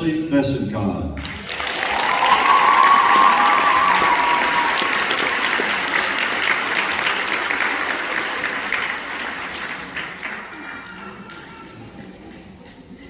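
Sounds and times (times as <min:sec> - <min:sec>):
audience applauding: 0:01.2 - 0:11.8.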